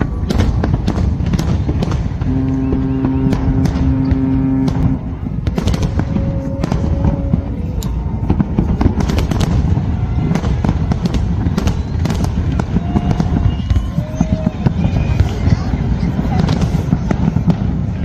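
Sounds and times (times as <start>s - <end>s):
continuous low rumble: 0.0s - 18.0s
fireworks bangs and crackles: 0.0s - 18.0s
long steady horn blast: 2.0s - 7.8s
higher horn tone: 2.2s - 7.8s.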